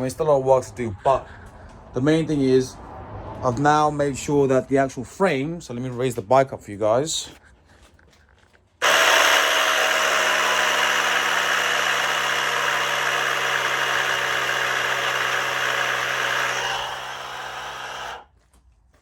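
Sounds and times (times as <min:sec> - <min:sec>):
lift motor running with hiss: 0:08.8 - 0:18.2.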